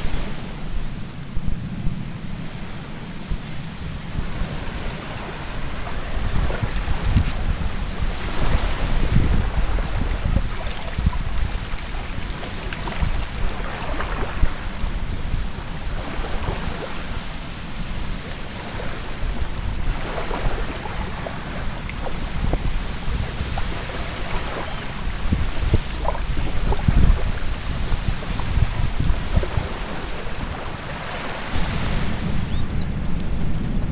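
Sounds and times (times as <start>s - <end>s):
surf breaking on beach: 0.0s - 33.9s
wind buffeting microphone: 0.0s - 33.9s.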